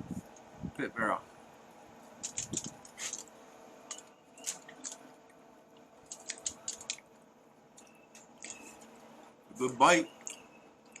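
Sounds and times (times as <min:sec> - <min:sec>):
person chewing: 0:06.0 - 0:07.0
wet smacking mouth sounds: 0:06.1 - 0:07.1.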